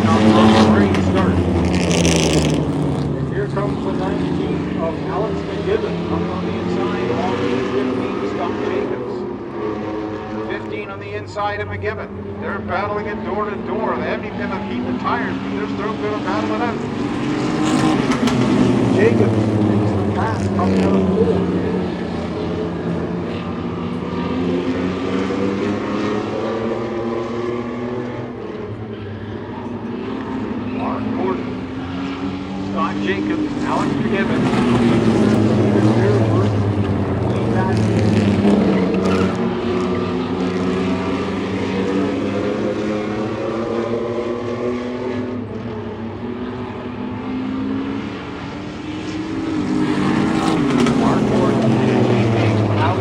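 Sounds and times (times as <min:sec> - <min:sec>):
race truck engines running hard: 0:00.0 - 0:53.0.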